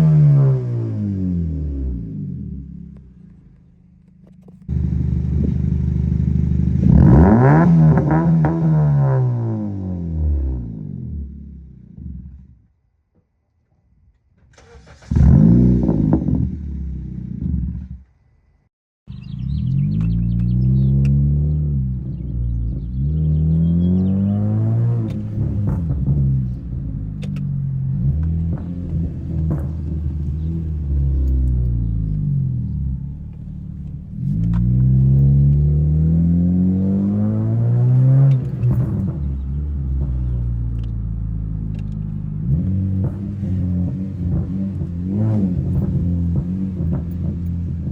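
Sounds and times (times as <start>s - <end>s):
car engine starting and revving: 0.0s - 12.6s, 14.4s - 18.3s, 19.1s - 47.9s
car engine running: 1.3s - 8.6s, 19.1s - 47.9s
exhaust crackling pops: 14.4s - 18.2s, 19.5s - 47.9s.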